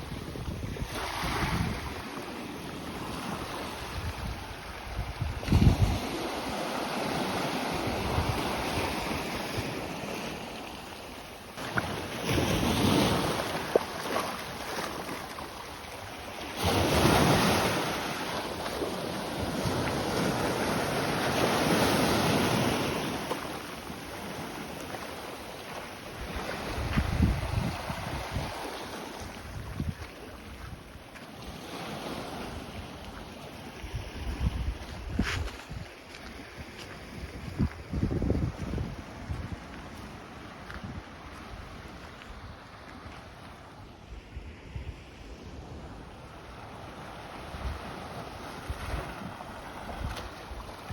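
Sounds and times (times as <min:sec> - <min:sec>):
wind buffeting microphone: 0:00.0 - 0:02.1, 0:03.3 - 0:06.6, 0:07.8 - 0:09.9, 0:26.2 - 0:30.9, 0:33.8 - 0:42.6
sea waves washing on beach: 0:00.0 - 0:50.9.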